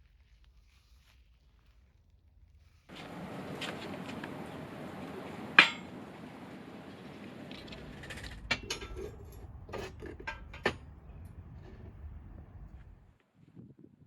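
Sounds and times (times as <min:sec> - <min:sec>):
faint steady background noise: 0:02.7 - 0:13.2
light clinks and knocks: 0:02.9 - 0:13.1.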